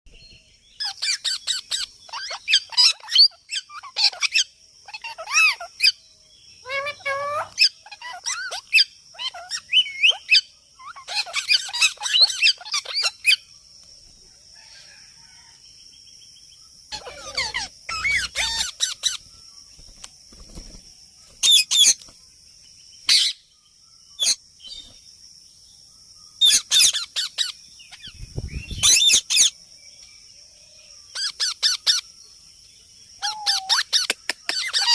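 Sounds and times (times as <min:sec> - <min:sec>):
parrots chirping calls: 0:00.8 - 0:13.5, 0:16.9 - 0:19.3, 0:21.4 - 0:22.0, 0:23.0 - 0:23.6, 0:24.2 - 0:24.8, 0:26.4 - 0:29.6, 0:31.0 - 0:32.1, 0:33.2 - 0:34.9.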